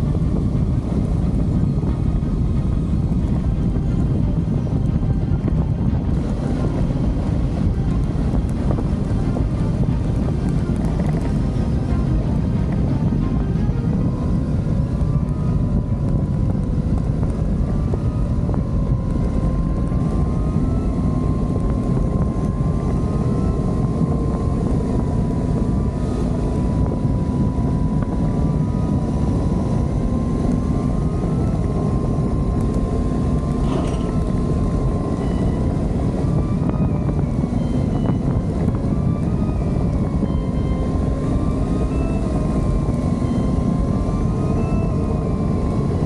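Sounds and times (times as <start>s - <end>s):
motorcycle engine running: 0.0s - 20.9s
wind buffeting microphone: 0.0s - 46.0s.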